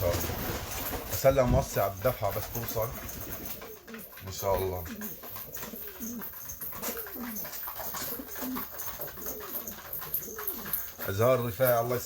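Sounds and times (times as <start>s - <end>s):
faint clicks and rustles: 0.0s - 12.0s
pigeons cooing: 0.0s - 12.0s.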